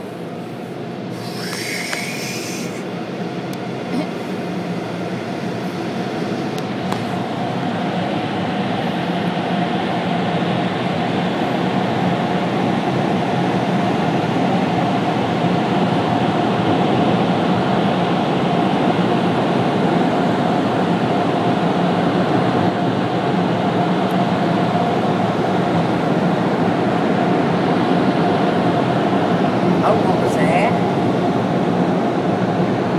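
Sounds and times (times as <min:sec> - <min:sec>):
car wash air dryers blowing: 0:00.0 - 0:14.7.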